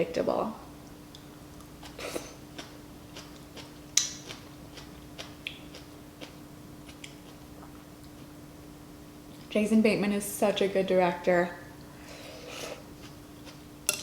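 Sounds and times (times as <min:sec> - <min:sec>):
faint steady hum: 0:00.0 - 0:14.0
faint chewing: 0:00.8 - 0:08.4.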